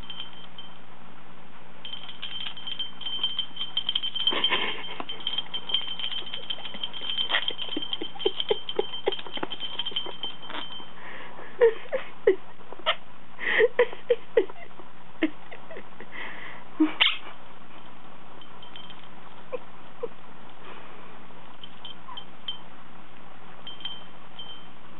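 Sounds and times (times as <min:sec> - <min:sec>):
bell ringing: 0:00.0 - 0:00.8, 0:01.8 - 0:11.0, 0:23.7 - 0:24.8
knocks and clinks on toy: 0:01.9 - 0:10.9.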